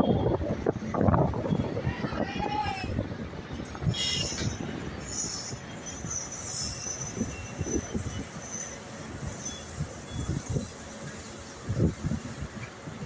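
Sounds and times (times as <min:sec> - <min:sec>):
train rumbling and knocking: 0:00.0 - 0:13.0
wheels squealing: 0:01.6 - 0:11.4.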